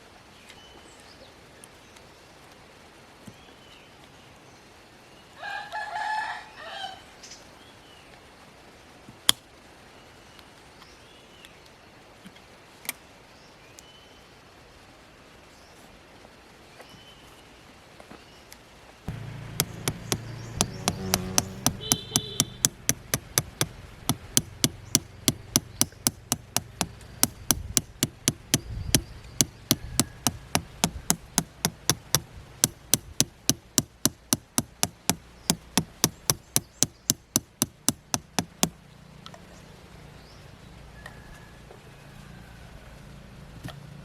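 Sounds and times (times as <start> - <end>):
hammer striking metal: 19.1 - 38.8.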